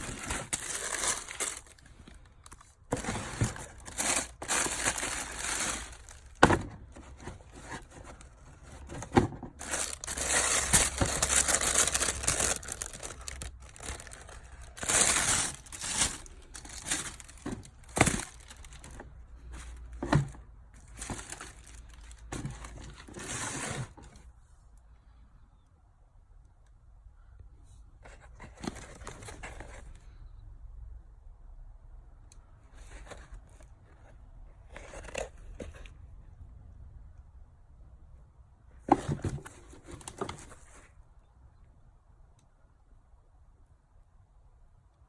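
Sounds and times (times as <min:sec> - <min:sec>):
packaging crinkling and rustling: 0:00.0 - 0:24.2, 0:38.9 - 0:40.9.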